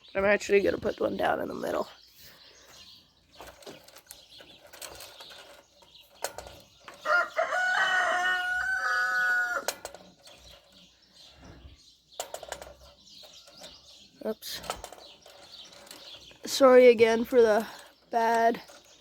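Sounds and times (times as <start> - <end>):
rooster crowing: 7.0 - 9.7.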